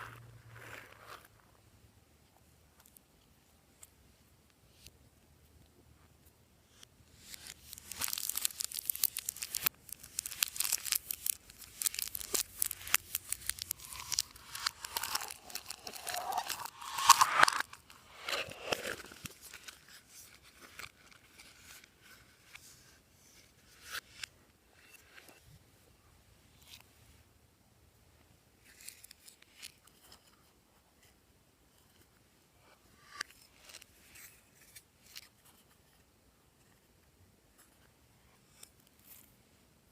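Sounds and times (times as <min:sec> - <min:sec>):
slime crackling and tearing: 0:07.2 - 0:19.8
slime squeaks: 0:07.7 - 0:19.5.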